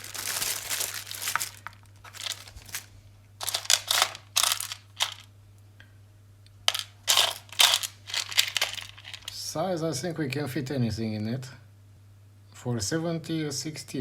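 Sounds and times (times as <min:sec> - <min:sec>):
rustling and clinking of parts: 0:00.0 - 0:05.3, 0:06.7 - 0:09.4.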